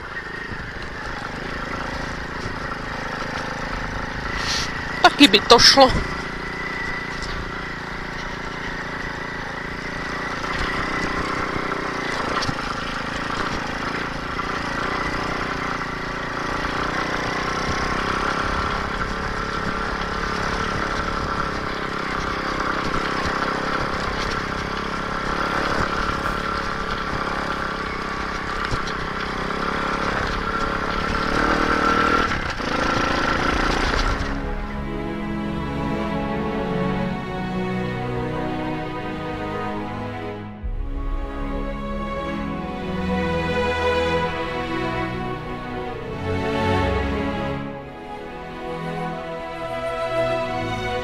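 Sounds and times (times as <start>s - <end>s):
motorcycle engine running: 0.0s - 51.0s.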